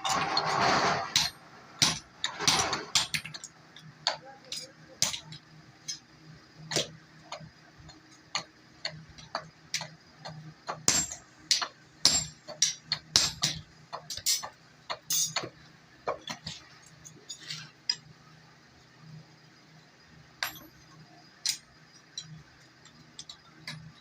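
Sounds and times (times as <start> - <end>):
hammer striking metal on anvil: 10.7 - 13.6.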